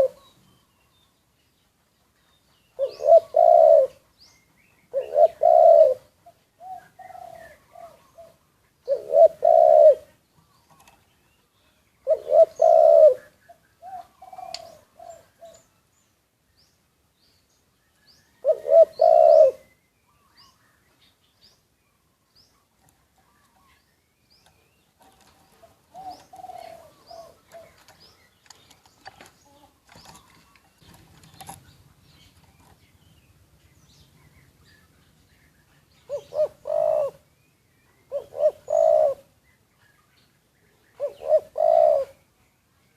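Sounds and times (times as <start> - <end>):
doves cooing: 0.0 - 0.4, 2.7 - 4.1, 4.9 - 11.1, 12.0 - 15.7, 18.4 - 19.7, 24.4 - 32.8, 36.1 - 37.4, 38.0 - 39.4, 40.9 - 42.3
small bird chirps: 0.0 - 9.7.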